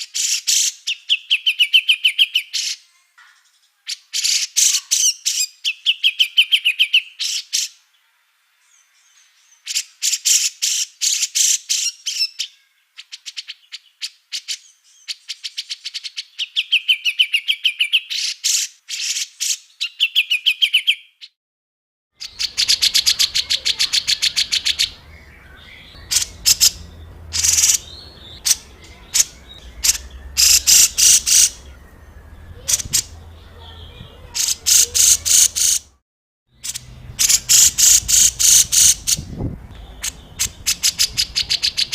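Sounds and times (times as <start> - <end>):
songbird chattering song: 0.0 - 7.8, 8.7 - 21.4, 22.2 - 36.0, 36.6 - 41.9
low background hum: 22.6 - 35.6.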